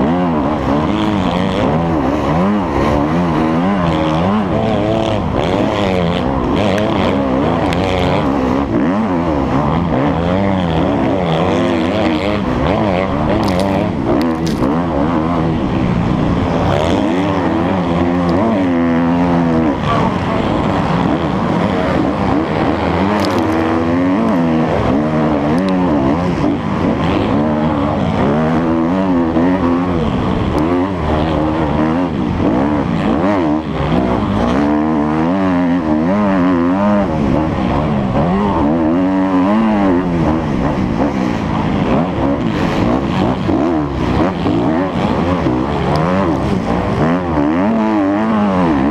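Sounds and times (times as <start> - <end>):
motocross bike engine revving: 0.0 - 48.9.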